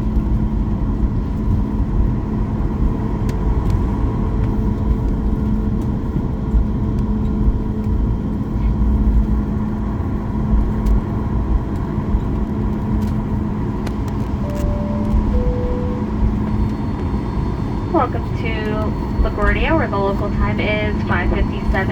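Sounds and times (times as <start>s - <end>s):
cabin rumble and hum: 0.0s - 21.9s
pa announcement: 14.4s - 16.4s, 17.8s - 21.9s
two-tone cabin chime: 14.4s - 16.7s.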